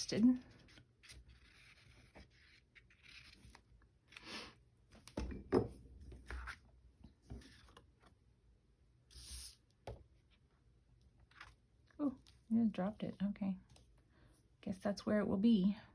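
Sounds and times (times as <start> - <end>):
paper rustling: 0.2 - 4.2.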